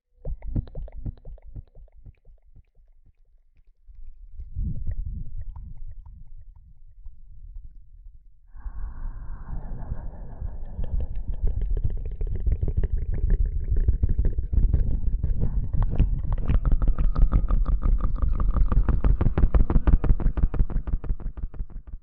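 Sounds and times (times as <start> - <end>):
deep rumble: 3.9 - 22.0
rubbing and scratching on microphone: 10.6 - 21.9.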